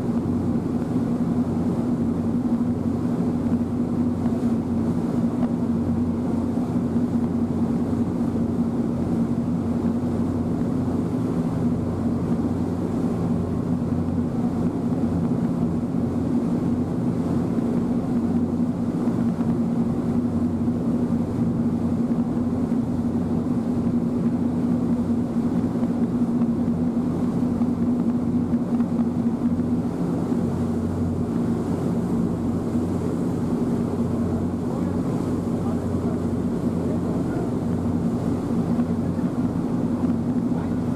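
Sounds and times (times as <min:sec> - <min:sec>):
ferry engine drone: 0:31.2 - 0:40.9.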